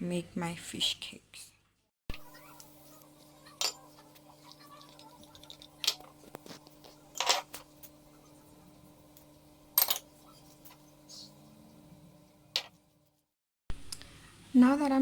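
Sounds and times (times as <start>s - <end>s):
bowls and utensils clinking: 3.5s - 6.1s, 7.1s - 7.9s, 9.8s - 10.1s.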